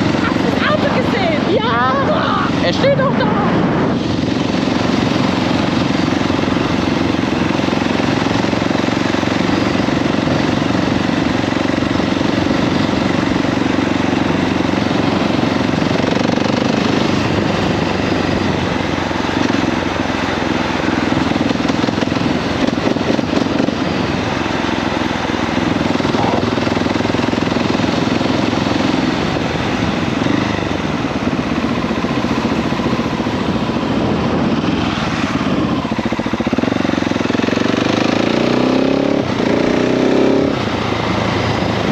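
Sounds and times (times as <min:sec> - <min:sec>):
motorcycle engine running: 0:00.0 - 0:41.9
wind and road noise: 0:00.0 - 0:41.9.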